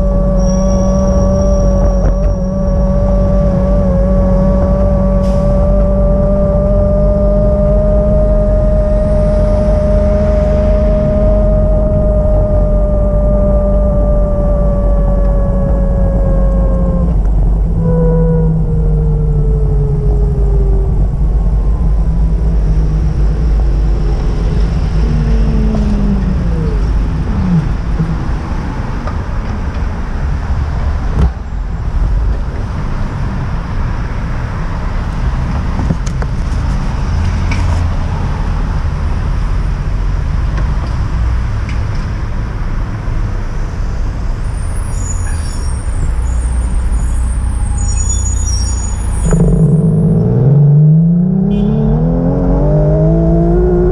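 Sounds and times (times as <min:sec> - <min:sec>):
whine falling in pitch: 0:00.0 - 0:28.4, 0:48.2 - 0:53.9
heavy vehicle engine rumble: 0:00.0 - 0:53.9.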